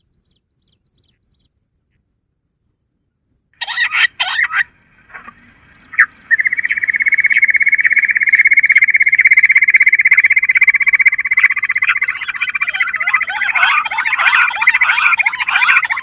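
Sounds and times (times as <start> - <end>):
quail fast high trill: 3.6 - 4.7, 5.9 - 16.0
quail chirp: 3.6 - 16.0.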